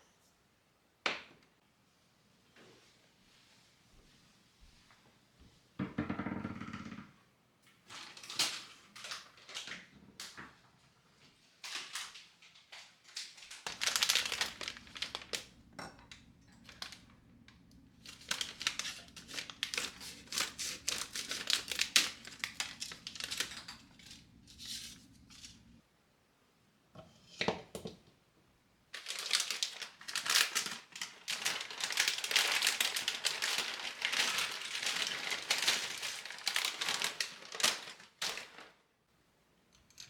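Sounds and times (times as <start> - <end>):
crinkling and crushing: 11.6 - 25.8, 28.9 - 38.8
appliance humming: 13.7 - 25.8.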